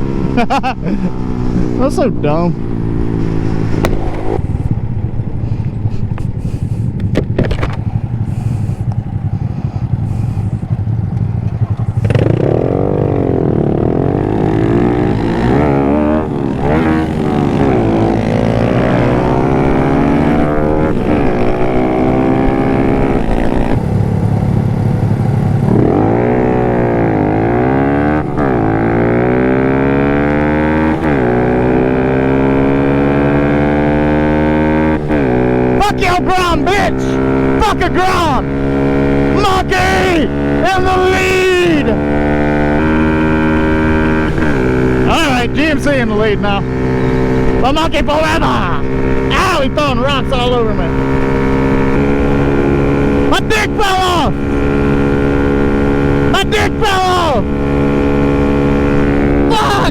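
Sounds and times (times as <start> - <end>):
wind noise: 0.0 - 11.1, 12.0 - 29.5
small motorcycle engine accelerating: 0.0 - 59.9.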